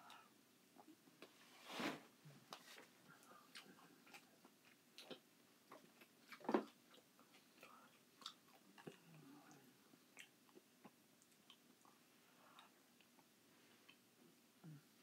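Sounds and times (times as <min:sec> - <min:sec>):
person chewing and lip smacking: 0:03.2 - 0:14.0.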